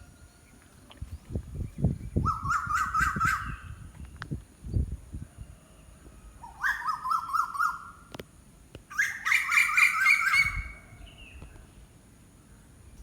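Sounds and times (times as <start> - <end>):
bird calling: 2.2 - 3.7, 8.9 - 11.5.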